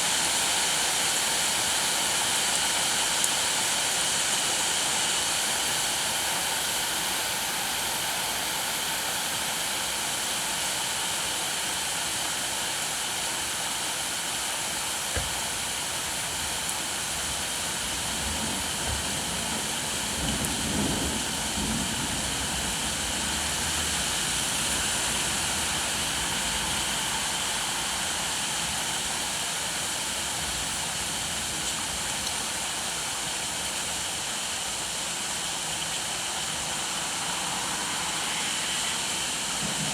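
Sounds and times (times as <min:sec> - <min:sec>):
rain falling: 0:00.0 - 0:39.9
knock: 0:15.1 - 0:15.4.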